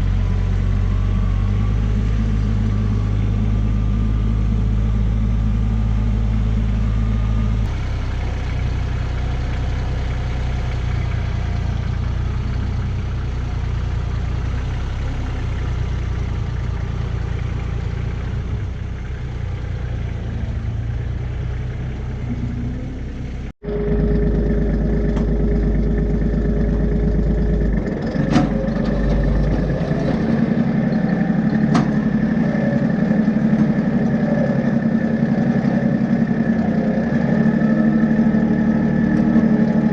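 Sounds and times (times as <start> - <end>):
tractor engine running: 0.0 - 39.9
steady whine: 23.6 - 36.8.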